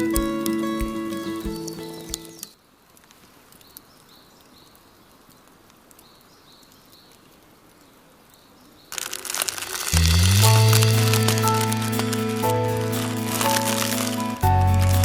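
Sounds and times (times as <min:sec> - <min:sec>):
background music: 0:00.0 - 0:02.4, 0:10.0 - 0:15.0.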